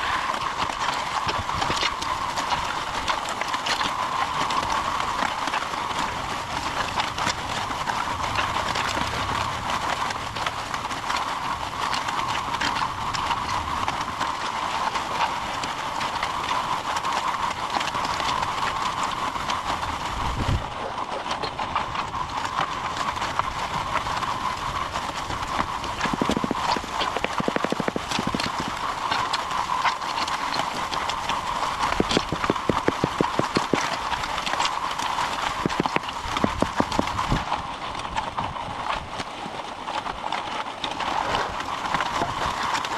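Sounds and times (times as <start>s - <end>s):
fast rattling clatter: 0.0s - 39.2s
concrete mixer running: 21.8s - 37.6s.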